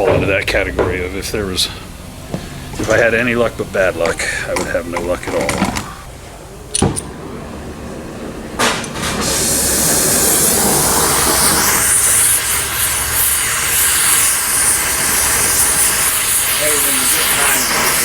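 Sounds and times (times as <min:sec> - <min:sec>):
loud spraying hiss: 0:01.3 - 0:05.6, 0:09.1 - 0:18.0.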